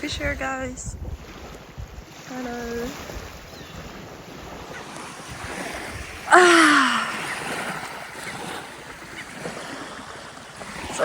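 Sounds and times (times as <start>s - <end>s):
steady wind: 0.0s - 11.0s
lapping water: 1.4s - 11.0s
person shouting drawn-out call: 6.3s - 7.3s.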